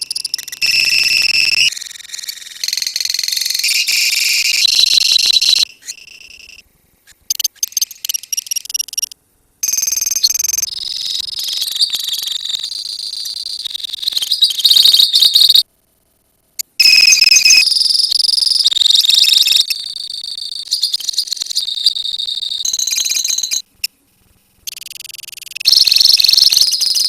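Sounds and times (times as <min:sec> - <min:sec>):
birds chirping and trilling: 0:10.8 - 0:15.6.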